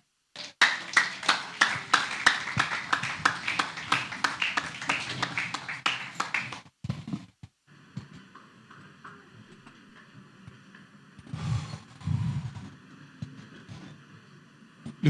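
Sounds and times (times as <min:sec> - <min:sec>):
faint steady hum: 0:00.0 - 0:06.6, 0:07.6 - 0:15.0
rhythmic handclapping: 0:00.4 - 0:06.7.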